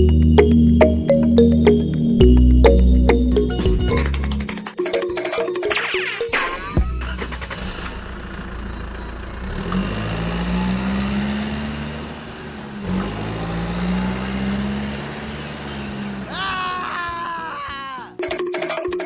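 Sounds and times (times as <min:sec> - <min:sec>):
engine running: 0:06.3 - 0:17.0.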